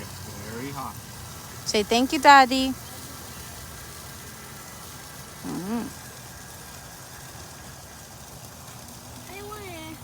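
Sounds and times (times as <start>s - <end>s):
short vocal sound: 5.4s - 6.0s.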